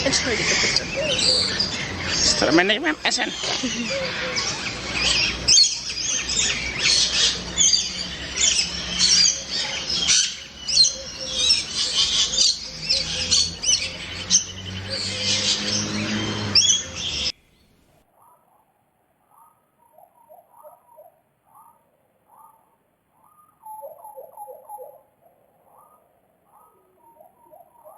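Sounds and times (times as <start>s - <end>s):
tropical birds chirping and calling: 0.0s - 17.8s.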